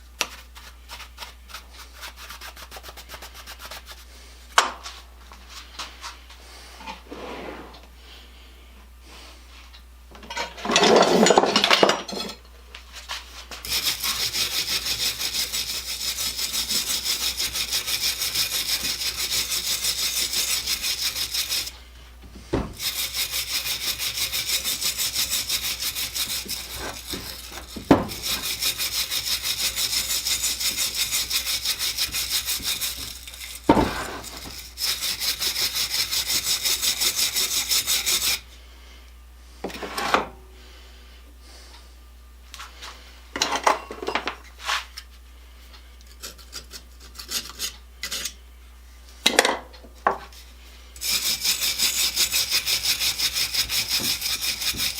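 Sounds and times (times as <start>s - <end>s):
hand scrubbing strokes: 13.6s - 21.8s, 22.7s - 38.4s, 51.0s - 54.9s.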